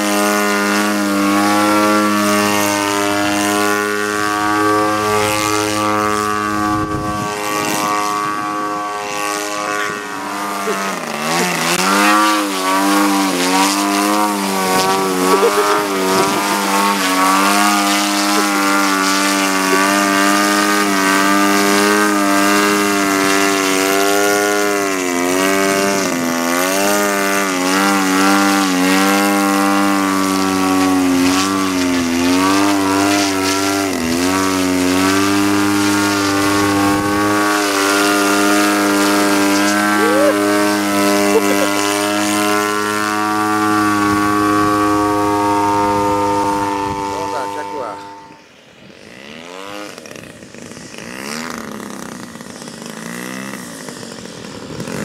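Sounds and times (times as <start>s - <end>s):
model airplane engine running: 0.0s - 55.0s.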